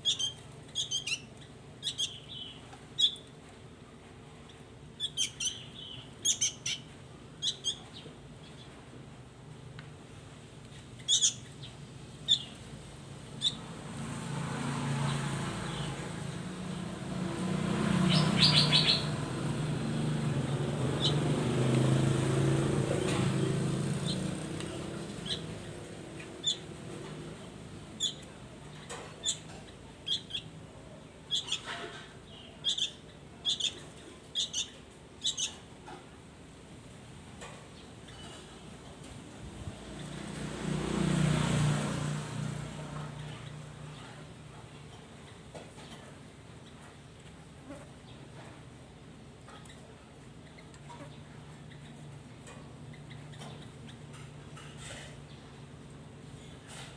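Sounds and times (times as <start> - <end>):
songbird chirping: 13.3 - 35.6.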